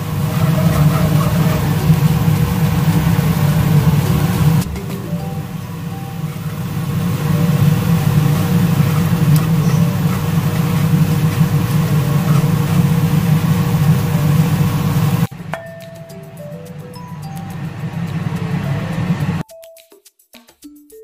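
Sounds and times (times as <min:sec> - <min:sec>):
food sizzling in oil: 0:00.0 - 0:15.3
loud low hum: 0:00.0 - 0:15.3.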